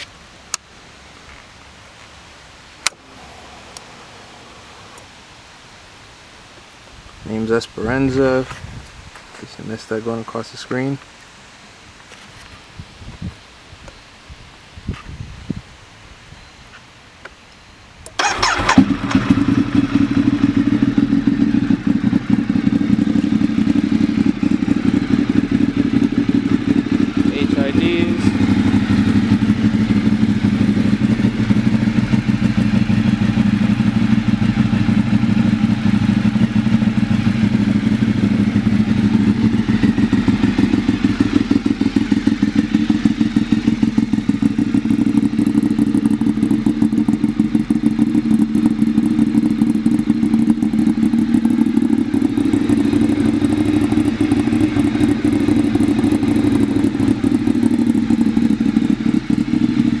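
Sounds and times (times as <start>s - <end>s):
motorcycle engine idling: 2.8s - 5.8s, 18.1s - 60.0s.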